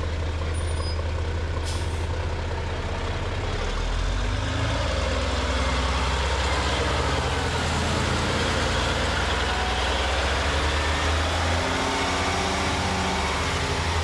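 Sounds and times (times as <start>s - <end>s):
heavy equipment engine running: 0.0s - 14.0s.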